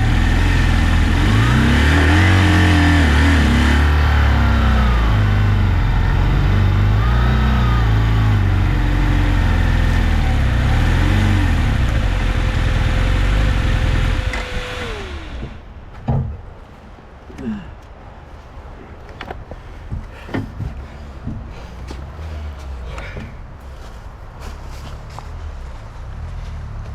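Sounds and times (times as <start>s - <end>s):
motorcycle engine revving: 0.0s - 15.9s, 16.5s - 26.9s
short knocks: 14.0s - 25.4s.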